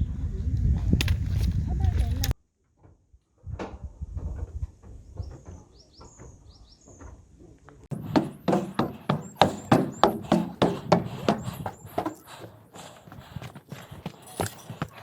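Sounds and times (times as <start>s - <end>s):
footsteps on hard surface: 7.9s - 15.0s.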